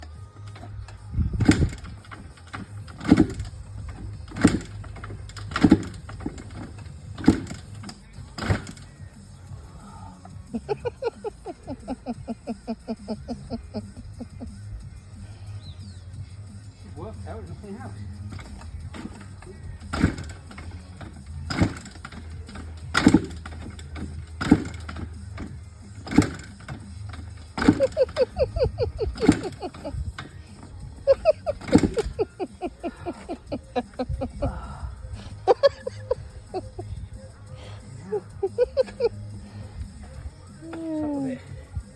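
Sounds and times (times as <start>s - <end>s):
motorbike being kick-started: 0.0s - 41.9s
heavy knocks: 1.4s - 8.8s, 18.3s - 32.4s.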